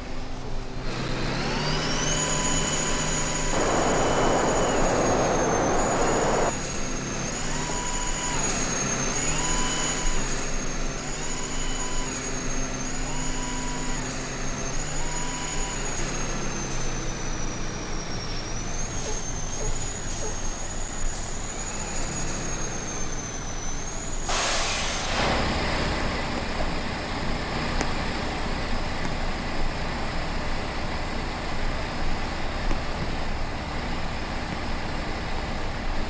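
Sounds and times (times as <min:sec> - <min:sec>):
truck engine whining: 0:00.0 - 0:36.0
loud hiss: 0:02.0 - 0:06.7.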